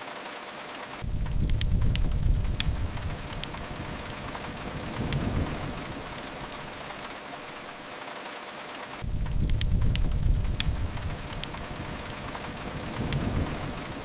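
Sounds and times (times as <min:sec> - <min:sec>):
rain hiss: 0:00.0 - 0:14.0
wood fire crackles: 0:00.0 - 0:14.0
heavy low rumble: 0:01.0 - 0:07.1, 0:09.0 - 0:14.0.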